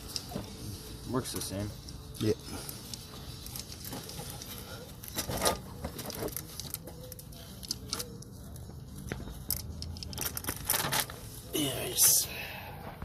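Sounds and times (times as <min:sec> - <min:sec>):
metal parts clicking and knocking: 0:02.7 - 0:11.2.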